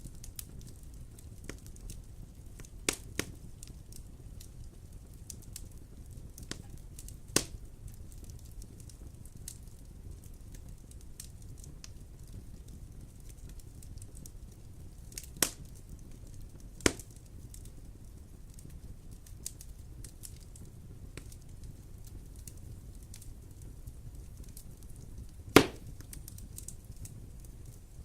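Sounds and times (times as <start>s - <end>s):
wood fire crackling: 0.0s - 28.0s
fire popping loudly: 12.5s - 28.0s.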